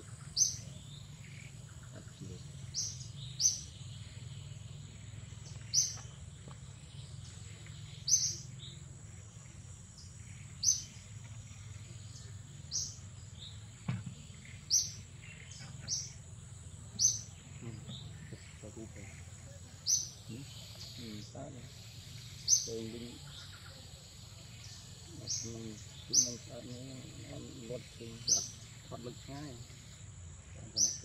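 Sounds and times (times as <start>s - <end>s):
bird chirping: 0.0s - 31.0s
insect drone: 0.0s - 31.0s.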